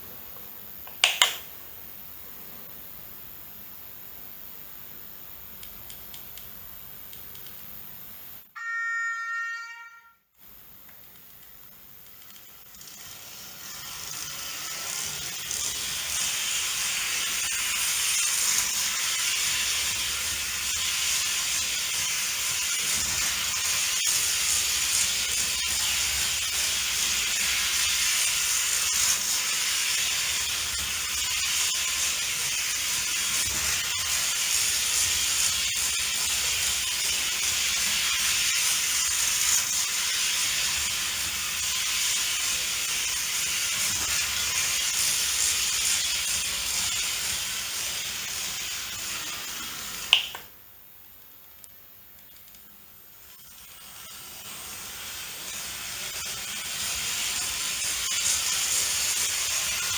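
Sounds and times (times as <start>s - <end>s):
sharp clicks: 0.8s - 1.5s
model train rolling: 11.6s - 50.1s, 53.2s - 59.9s.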